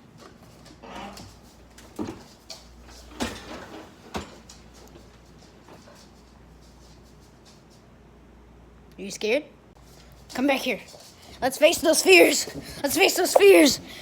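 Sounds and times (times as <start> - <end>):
dishwasher sliding scrape: 3.1 - 4.3.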